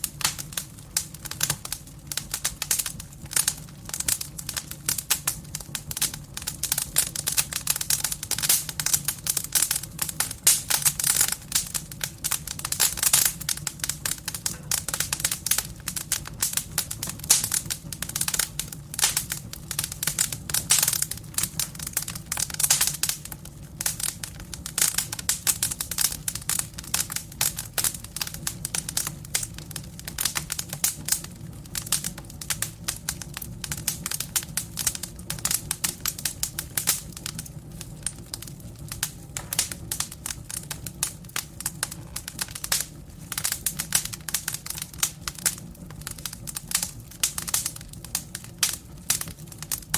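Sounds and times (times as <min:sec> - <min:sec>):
firewood crackling and popping: 0:00.0 - 0:49.9.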